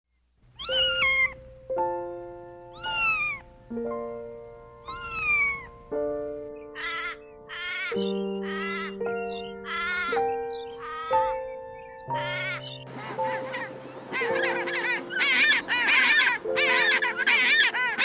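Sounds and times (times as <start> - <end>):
cat meowing: 0.6 - 1.4, 4.9 - 5.7
background music of held notes: 0.6 - 18.0.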